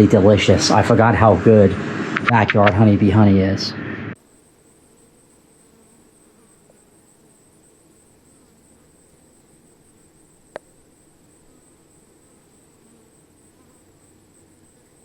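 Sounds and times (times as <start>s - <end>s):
sharp click: 2.2s - 2.8s
high-pitched insect chorus: 4.2s - 15.0s.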